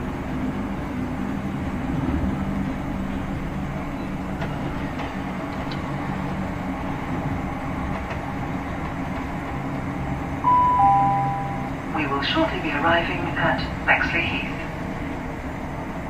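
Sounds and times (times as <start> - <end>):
train interior rumble: 0.0 - 16.0
two-note public-address chime: 10.4 - 11.8.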